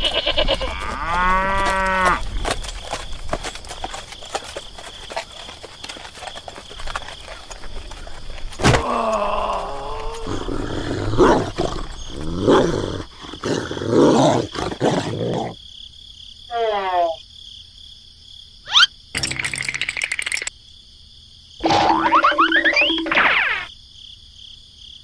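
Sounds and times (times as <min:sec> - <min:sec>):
dog growling: 0:10.0 - 0:15.6.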